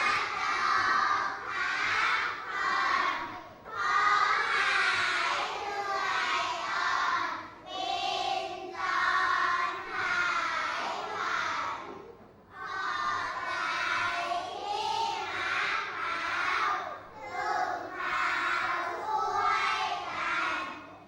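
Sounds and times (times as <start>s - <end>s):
children chanting in unison: 0.0s - 21.0s.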